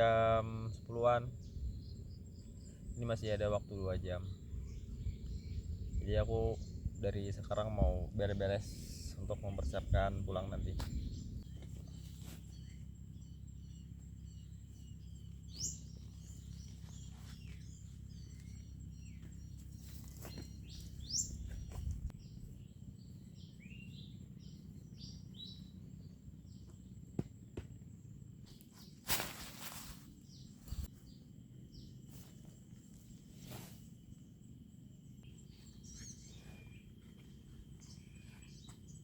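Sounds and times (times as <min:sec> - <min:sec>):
steady low rumble: 0:00.0 - 0:28.4
birds chirping: 0:00.0 - 0:39.0.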